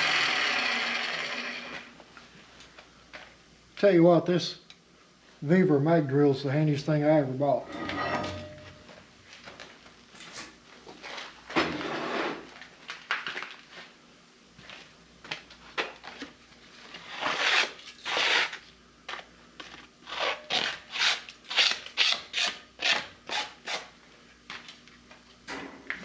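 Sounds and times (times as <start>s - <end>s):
rasping scraping strokes: 7.6s - 8.8s.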